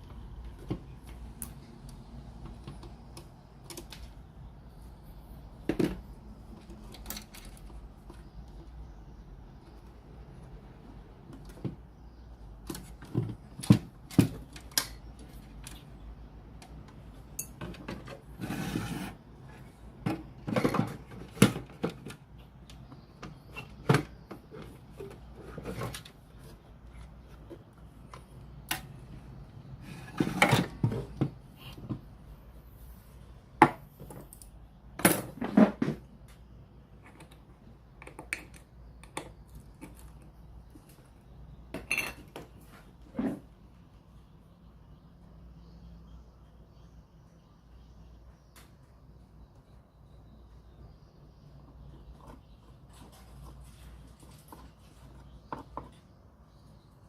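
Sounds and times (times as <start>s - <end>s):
tools and small parts clinking: 5.8s - 8.8s, 16.6s - 18.3s, 34.0s - 35.7s.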